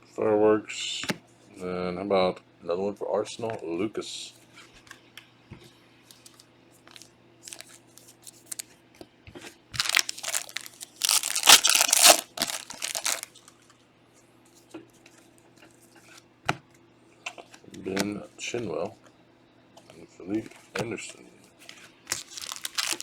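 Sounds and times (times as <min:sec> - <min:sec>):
card pack wrapper tearing: 0:06.9 - 0:08.6, 0:09.8 - 0:13.3, 0:22.1 - 0:23.0
wrapper crinkling: 0:06.9 - 0:08.6, 0:09.8 - 0:13.5, 0:22.1 - 0:23.0.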